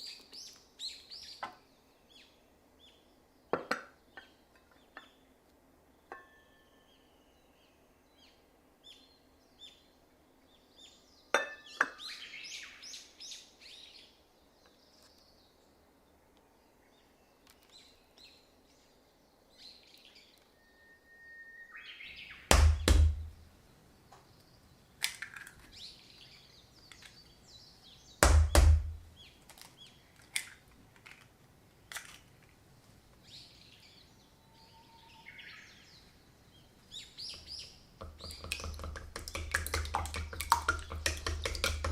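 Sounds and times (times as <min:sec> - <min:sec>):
heavy knocks: 0:22.5 - 0:23.4, 0:28.2 - 0:29.0.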